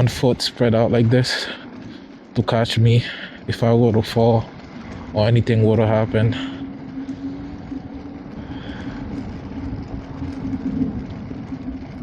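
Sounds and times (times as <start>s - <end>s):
electric scooter hum: 0.0s - 12.0s
road rumble: 0.0s - 12.0s
wind noise: 4.0s - 12.0s.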